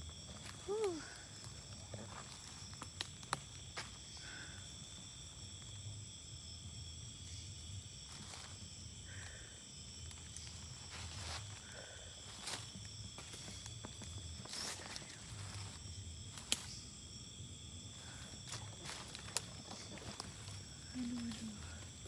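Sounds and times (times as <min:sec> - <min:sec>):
crickets trilling: 0:00.0 - 0:22.0
steps in undergrowth: 0:10.2 - 0:16.8, 0:18.0 - 0:22.0.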